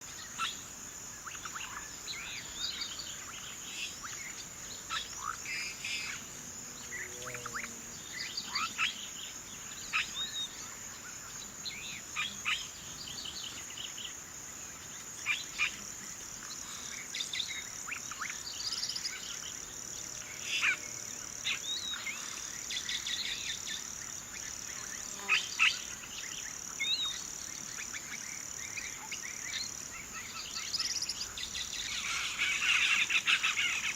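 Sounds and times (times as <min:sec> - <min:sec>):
high-pitched insect drone: 0:00.1 - 0:14.0.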